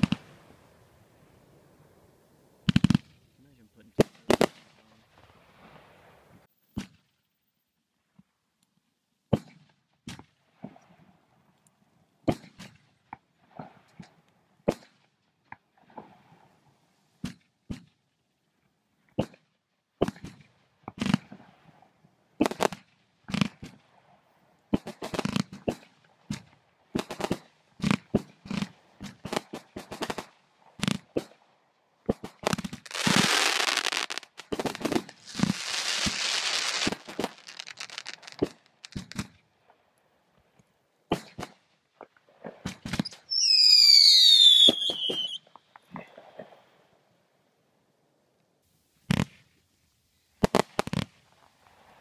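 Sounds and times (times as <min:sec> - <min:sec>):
fireworks bangs and pops: 0:00.0 - 0:00.5, 0:02.6 - 0:07.1, 0:09.3 - 0:10.8, 0:12.2 - 0:16.0, 0:17.2 - 0:17.9, 0:19.2 - 0:21.5, 0:22.4 - 0:23.8, 0:24.7 - 0:31.4, 0:32.0 - 0:39.4, 0:41.1 - 0:46.6, 0:49.0 - 0:49.6, 0:50.4 - 0:52.0
hissing crackle of fireworks: 0:00.0 - 0:07.0, 0:22.4 - 0:23.8, 0:24.7 - 0:31.4, 0:32.1 - 0:39.8, 0:42.6 - 0:46.9, 0:48.6 - 0:49.6, 0:50.2 - 0:52.0
whistling firework: 0:32.2 - 0:39.3, 0:42.7 - 0:45.5.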